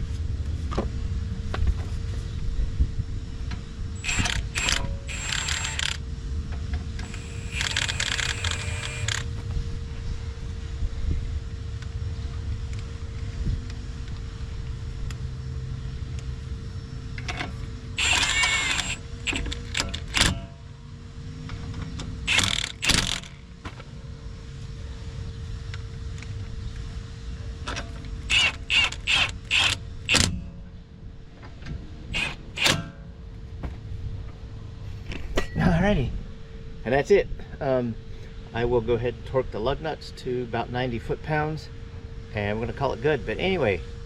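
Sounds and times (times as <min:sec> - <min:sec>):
impact wrench bursts: 0:04.0 - 0:06.0, 0:07.0 - 0:09.3, 0:18.0 - 0:20.4, 0:22.3 - 0:23.4, 0:28.3 - 0:30.3, 0:32.1 - 0:32.9.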